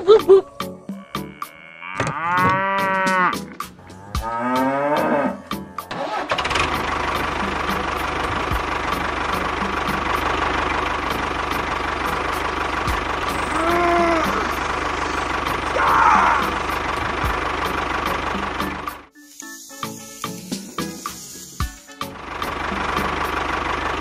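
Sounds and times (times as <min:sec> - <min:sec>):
cow mooing: 0:00.6 - 0:05.9, 0:13.2 - 0:16.8
small engine running: 0:05.8 - 0:24.0.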